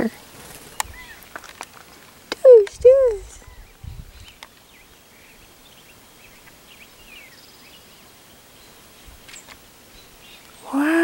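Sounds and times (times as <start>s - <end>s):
high bird trill: 0.0s - 1.2s
birds chirping faintly: 0.0s - 11.0s
faint outdoor background: 0.0s - 11.0s.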